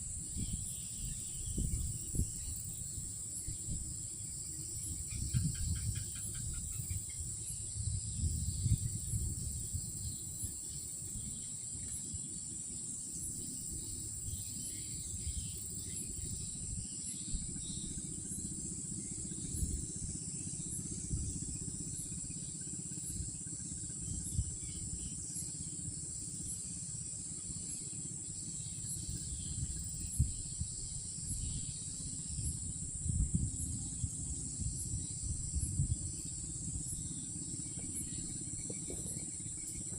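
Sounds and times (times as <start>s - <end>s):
insects trilling: 0.0s - 39.9s
pulsing chirp: 27.6s - 39.9s.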